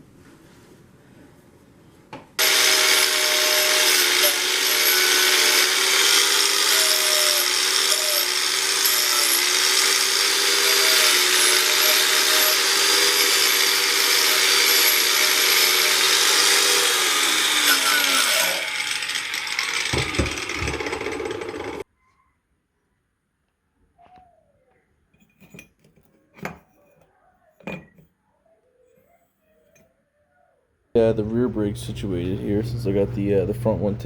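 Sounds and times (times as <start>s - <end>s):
power tool grinding metal: 2.4s - 21.8s
power tool spinning down: 2.4s - 21.8s.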